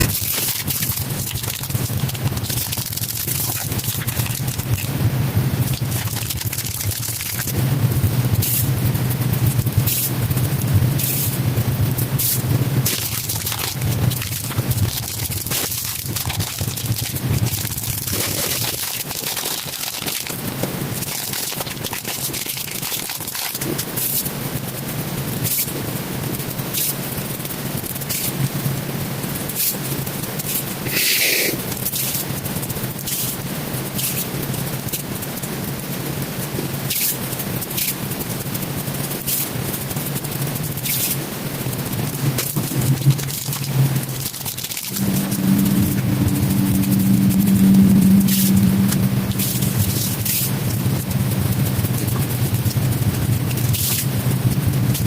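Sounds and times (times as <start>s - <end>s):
low hum: 0.0s - 22.4s, 41.6s - 55.0s
slime crackling and popping: 0.0s - 25.8s, 36.4s - 55.0s.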